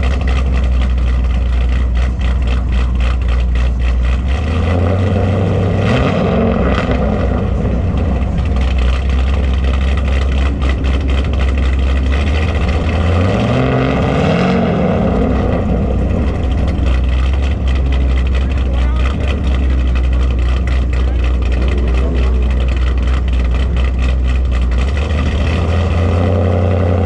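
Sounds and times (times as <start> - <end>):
car engine rumbling and revving: 0.0 - 27.0.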